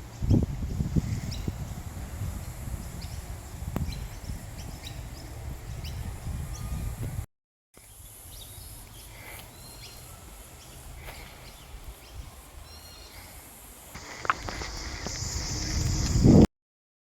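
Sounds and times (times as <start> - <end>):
birds chirping: 2.5 - 7.0, 7.8 - 16.4
steady low rumble: 14.0 - 16.5.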